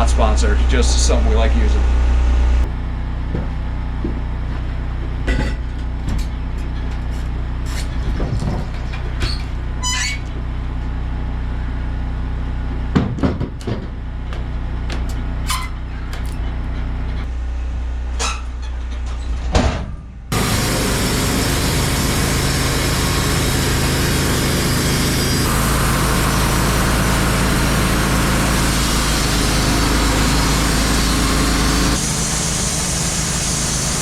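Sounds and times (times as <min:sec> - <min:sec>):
sawmill engine running: 0:00.0 - 0:13.0, 0:20.2 - 0:34.0
knocks and clanks: 0:05.0 - 0:09.6, 0:12.9 - 0:17.3, 0:18.2 - 0:20.5
sawmill rushing under load: 0:20.3 - 0:34.0.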